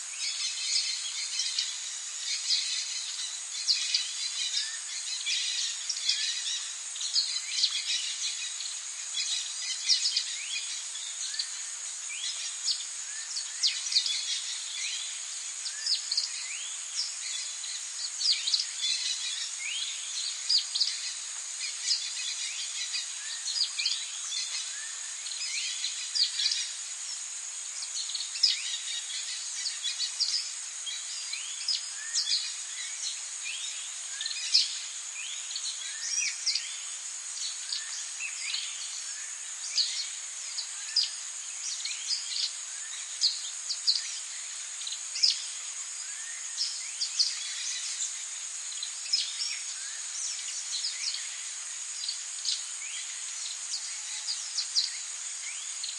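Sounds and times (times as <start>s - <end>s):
songbirds chirping and singing: 0.0s - 55.9s
steady high-pitched hiss: 0.0s - 55.9s.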